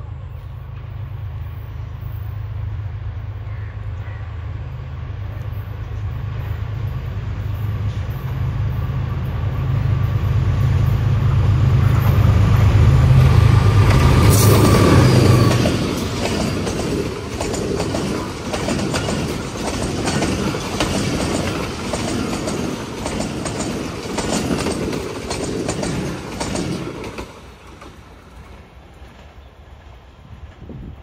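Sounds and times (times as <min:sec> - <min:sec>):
train rumble: 0:00.0 - 0:31.0
train wheels clicking over rail joints: 0:11.8 - 0:30.8.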